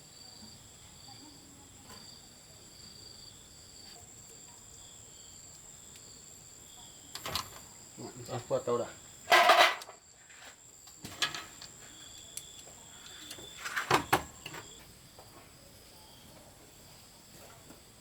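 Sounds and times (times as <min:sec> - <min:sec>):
handling scrapes and knocks: 0:09.3 - 0:11.6, 0:13.1 - 0:14.7.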